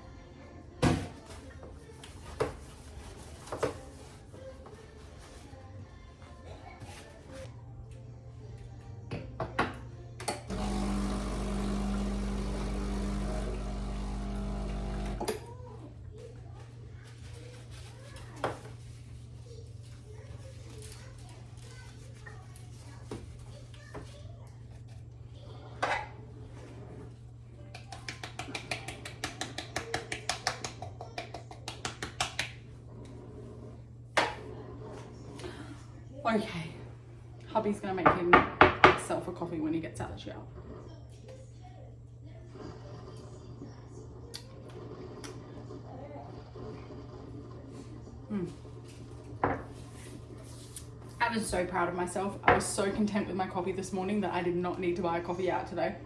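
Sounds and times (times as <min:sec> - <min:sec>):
small appliance motor humming: 0:10.3 - 0:15.5
kitchen items tapping and clicking: 0:27.7 - 0:32.6.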